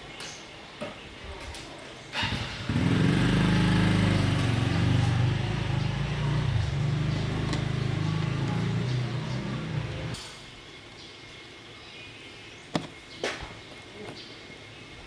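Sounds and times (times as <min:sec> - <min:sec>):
motor humming: 0:02.3 - 0:10.2.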